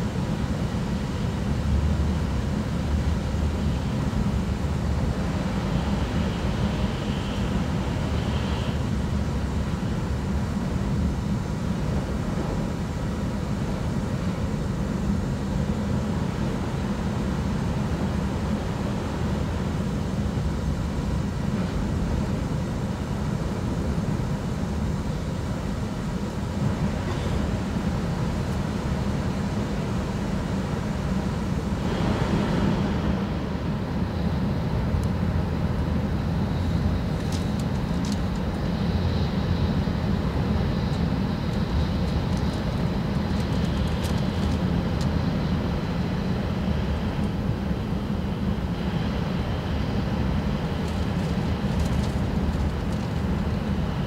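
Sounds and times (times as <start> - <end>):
train cabin rumble of wheels and air: 0.0 - 54.0
rushing noise of passing station: 31.4 - 35.4.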